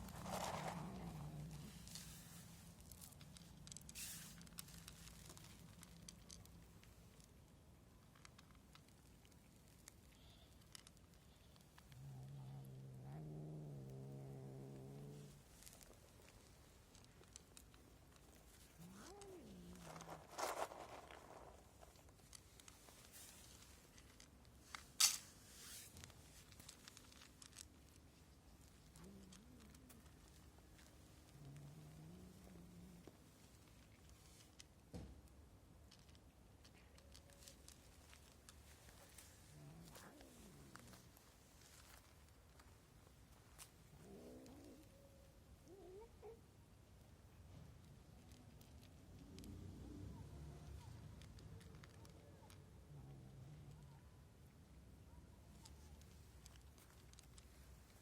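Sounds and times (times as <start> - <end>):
sharp rustle: 0.0 - 6.4, 18.4 - 28.0
soft rustle: 0.0 - 58.0
faint small clicks: 0.6 - 13.0, 13.8 - 58.0.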